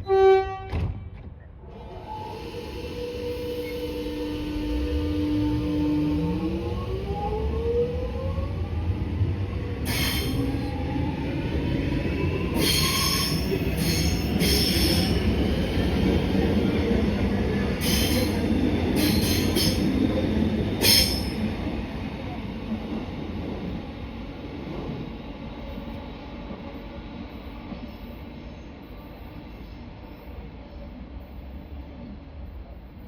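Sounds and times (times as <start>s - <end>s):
wheels rumbling on rail: 0.4s - 33.0s
train traction motor whine: 1.8s - 22.4s.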